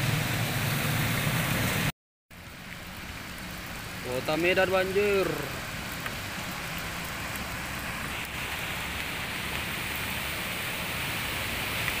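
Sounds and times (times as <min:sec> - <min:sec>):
rain falling on a flooded street: 0:00.0 - 0:12.0.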